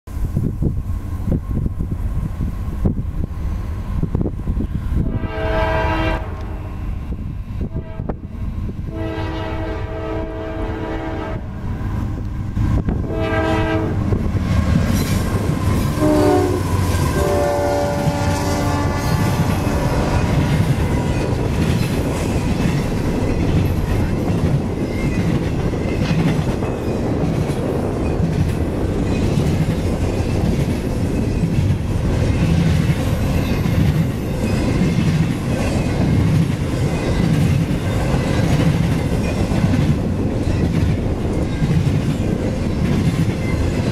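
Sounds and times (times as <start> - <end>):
locomotive air horn blasts: 5.0 - 6.8, 7.7 - 8.2, 8.9 - 11.6, 13.0 - 14.1, 16.0 - 20.2.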